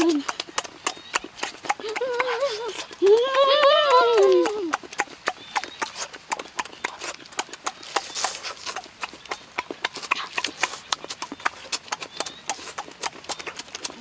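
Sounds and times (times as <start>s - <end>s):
crisp crunching and chewing: 3.7s - 14.0s.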